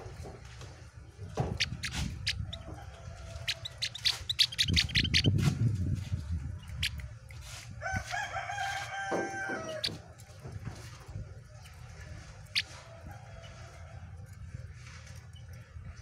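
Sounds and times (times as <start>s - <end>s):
low rumble: 0.0s - 8.1s
rooster crowing: 7.8s - 10.0s.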